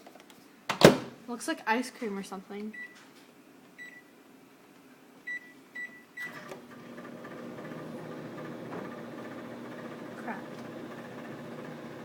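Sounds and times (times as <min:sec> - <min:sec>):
microwave oven humming: 0:06.2 - 0:12.0.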